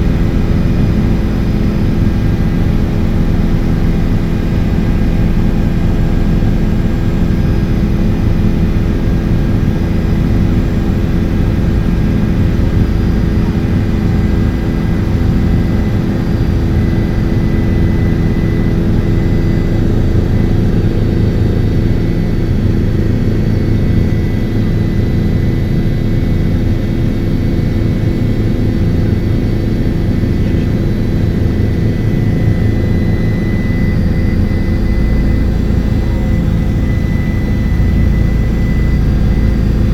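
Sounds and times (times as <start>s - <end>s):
helicopter rotor drone: 0.0s - 39.9s.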